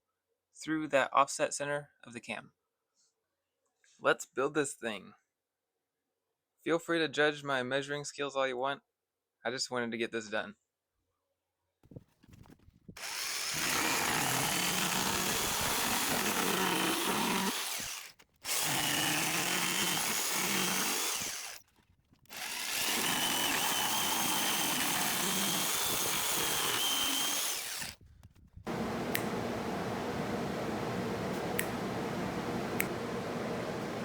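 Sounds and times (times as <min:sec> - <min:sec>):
power tool running under load: 0:13.0 - 0:21.6, 0:22.3 - 0:28.0, 0:28.7 - 0:34.0.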